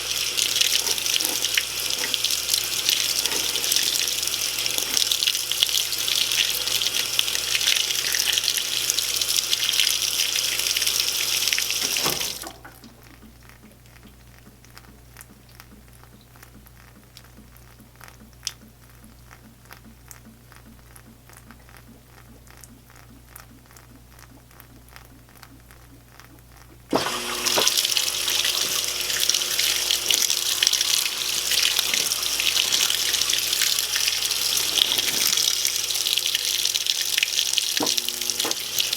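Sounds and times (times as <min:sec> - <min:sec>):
water jets hissing into tub: 0:00.0 - 0:12.8, 0:26.9 - 0:38.9
faint regular ticking: 0:12.6 - 0:26.9.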